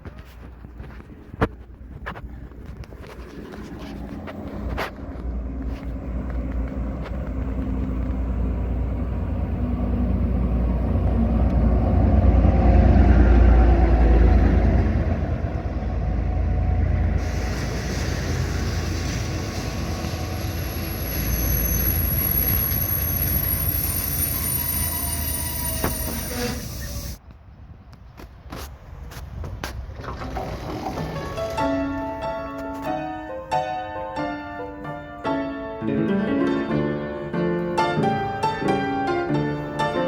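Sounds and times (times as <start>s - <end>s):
train rumbling past: 1.5s - 27.2s, 28.8s - 40.0s
high wheel squeals: 17.2s - 27.2s.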